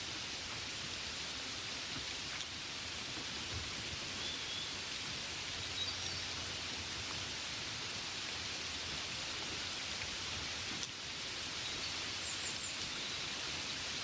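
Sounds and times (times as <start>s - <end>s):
gentle rain falling: 0.0s - 14.0s.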